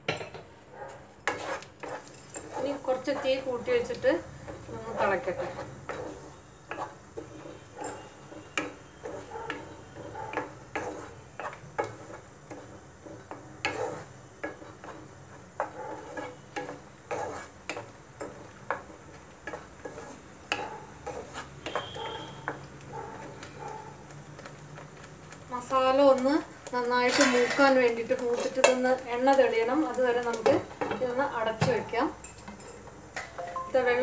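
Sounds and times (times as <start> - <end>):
spatula scraping a pan: 1.2 - 23.7, 26.9 - 31.2.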